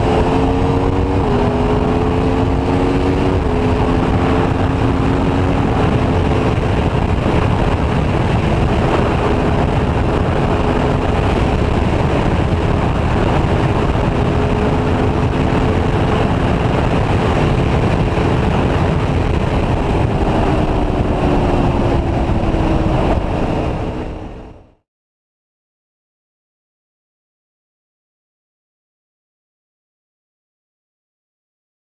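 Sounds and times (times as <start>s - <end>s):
motorcycle engine running: 0.0s - 24.7s
wind rush: 0.0s - 24.8s.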